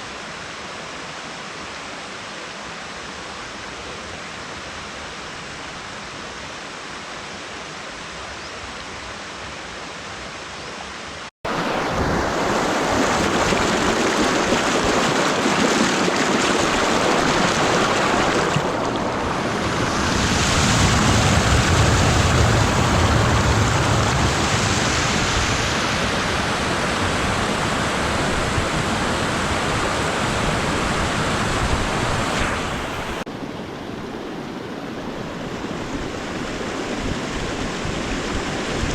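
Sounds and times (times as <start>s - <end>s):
flowing water: 11.0s - 38.9s.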